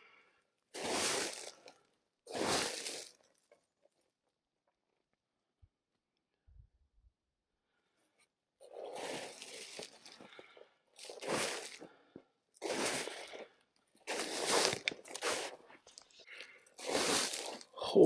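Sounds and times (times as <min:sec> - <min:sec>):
boots crunching through snow: 0:00.8 - 0:01.6, 0:02.3 - 0:03.1, 0:08.8 - 0:10.2, 0:11.0 - 0:11.8, 0:12.6 - 0:13.4, 0:14.1 - 0:15.6, 0:16.8 - 0:17.6.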